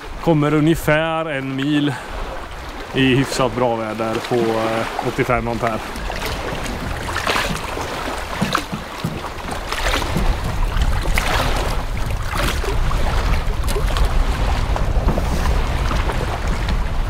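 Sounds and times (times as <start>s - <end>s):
wind buffeting microphone: 2.1s - 17.0s
microphone handling knocks: 8.3s - 11.2s, 14.7s - 17.0s.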